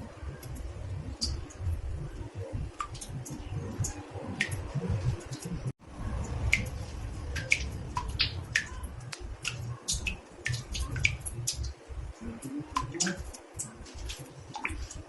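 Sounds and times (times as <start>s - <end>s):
water drops plinking into bathtub: 6.2s - 15.0s.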